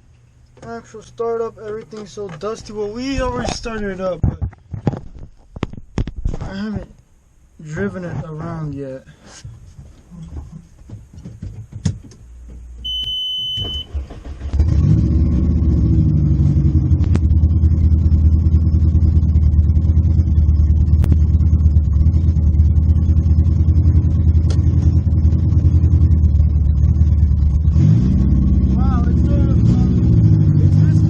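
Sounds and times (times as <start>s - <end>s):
electronic beep: 12.8s - 13.9s
race car engine starting and idling: 12.8s - 31.0s.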